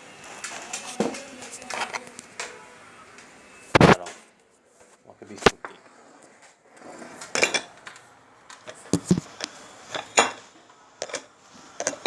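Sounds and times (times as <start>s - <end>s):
hard objects knocking and clinking: 9.0s - 9.4s.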